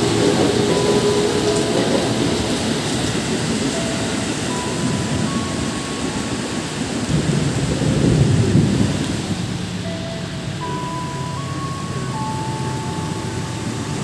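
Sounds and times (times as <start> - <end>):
electric train pulling away: 0.0 - 14.0
gusty wind: 0.0 - 14.0
heavy rain pouring: 0.0 - 14.0.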